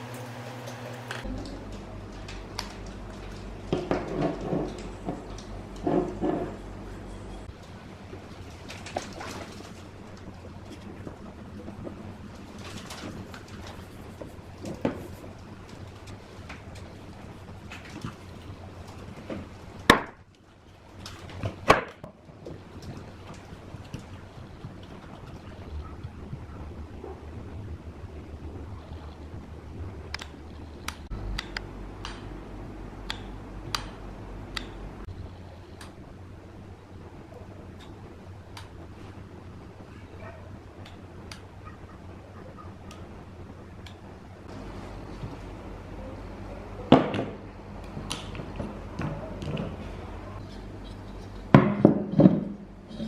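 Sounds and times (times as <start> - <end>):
steady low hum: 0.0 - 53.0
hard objects knocking: 3.6 - 6.6, 51.5 - 53.0.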